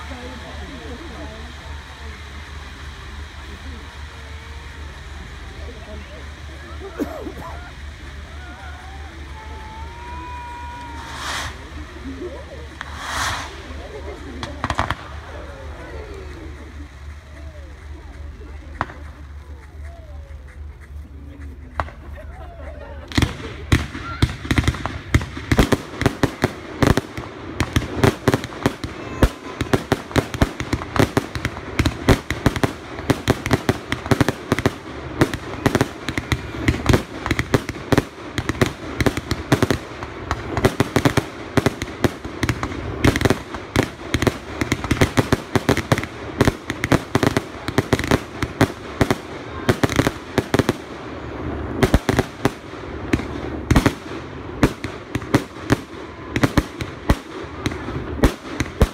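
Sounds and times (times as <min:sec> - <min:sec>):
fireworks exploding: 0:00.0 - 0:58.9.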